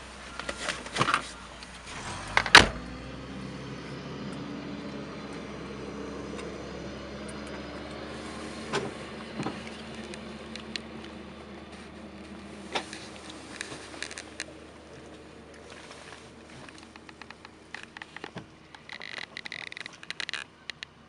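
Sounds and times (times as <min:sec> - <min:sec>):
low hum: 0:00.0 - 0:20.7
car engine and road noise: 0:00.0 - 0:21.0
sharp clicks and ticks: 0:16.6 - 0:21.0.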